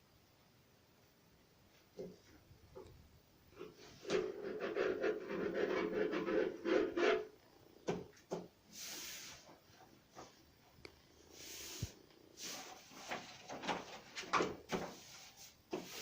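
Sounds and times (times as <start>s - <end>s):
wallpaper rustling and rubbing: 3.6s - 7.3s, 11.3s - 16.0s
short hiss: 8.7s - 9.6s, 11.3s - 13.1s.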